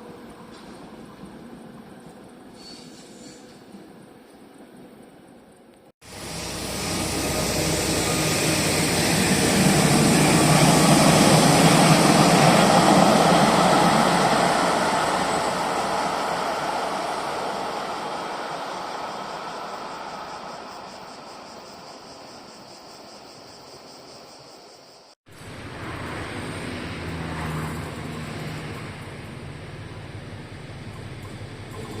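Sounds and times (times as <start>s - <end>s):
train passing: 0.0s - 24.4s, 25.3s - 32.0s.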